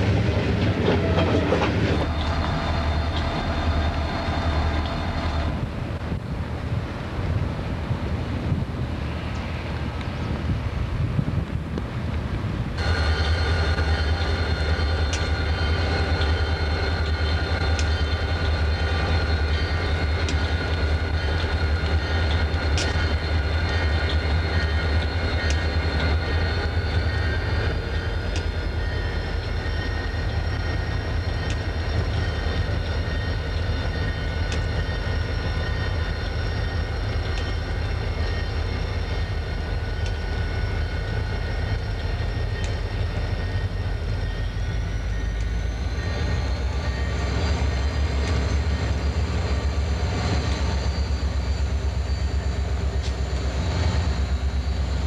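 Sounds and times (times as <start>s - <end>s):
diesel locomotives rumbling: 0.0s - 55.0s.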